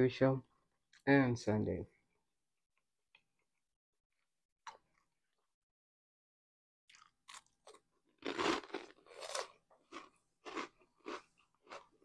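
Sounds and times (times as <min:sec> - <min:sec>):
crunching and chewing cheese snack: 0:06.9 - 0:12.0.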